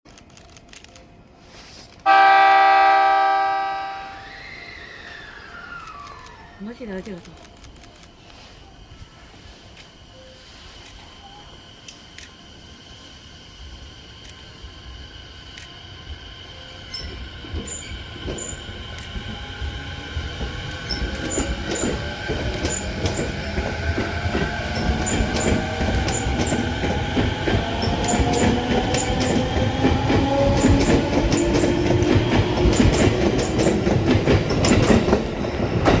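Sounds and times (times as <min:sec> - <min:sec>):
train inverter whining: 0:01.9 - 0:36.0
wheels clicking over rail joints: 0:20.4 - 0:36.0.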